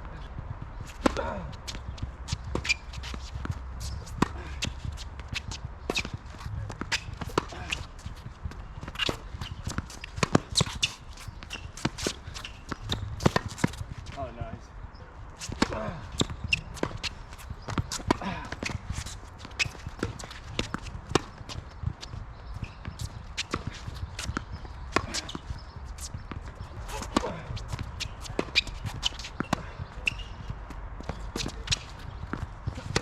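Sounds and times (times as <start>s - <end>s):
ball bouncing: 11.5s - 13.9s.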